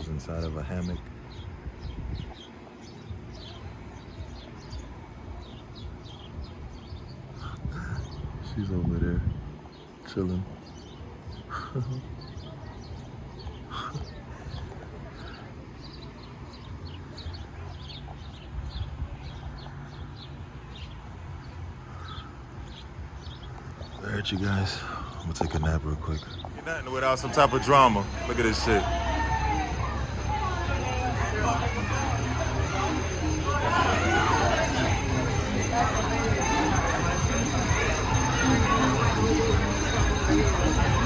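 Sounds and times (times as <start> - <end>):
small birds chirping: 0.0 - 41.0
steady low rumble: 3.0 - 12.1.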